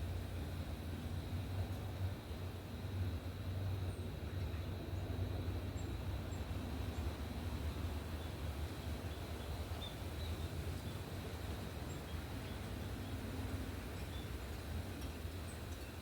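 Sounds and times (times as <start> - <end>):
small birds chirping: 8.1 - 16.0.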